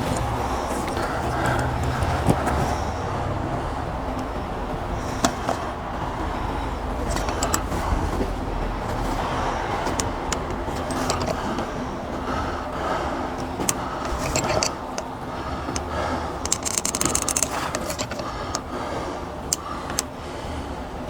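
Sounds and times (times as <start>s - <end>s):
low background rumble: 0.0s - 21.0s
caulking gun clicking: 16.5s - 18.7s.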